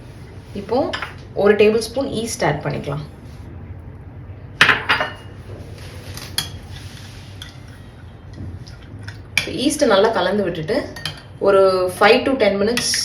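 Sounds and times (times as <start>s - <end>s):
spoon scraping and stirring: 5.6s - 10.3s
spoon clinking against bowl: 10.9s - 11.3s.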